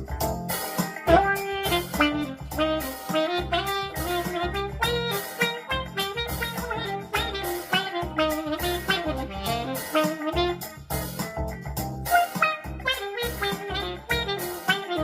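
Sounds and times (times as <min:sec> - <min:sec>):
saxophone with wah-wah filter: 0:00.0 - 0:11.3, 0:12.0 - 0:15.0
backing track bass and drums: 0:00.0 - 0:15.0.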